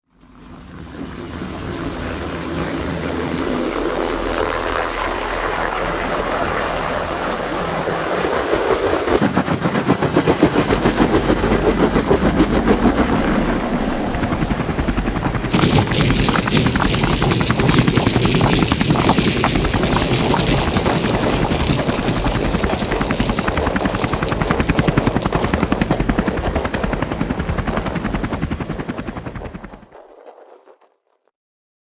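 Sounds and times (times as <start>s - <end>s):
helicopter rotor chop: 14.1s - 27.8s
helicopter turbine whine: 23.3s - 29.2s.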